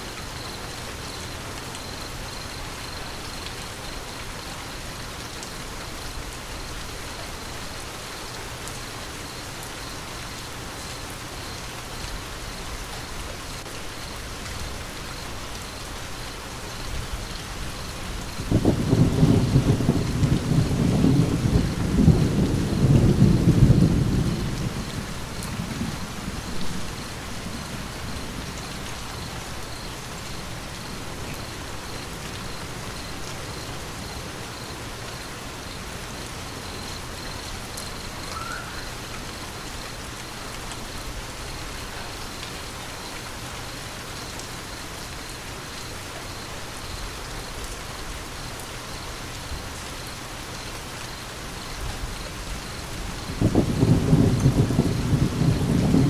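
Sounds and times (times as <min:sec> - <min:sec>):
steady rain: 0:00.0 - 0:56.0
thunder rumble: 0:17.0 - 0:33.8, 0:51.8 - 0:56.0.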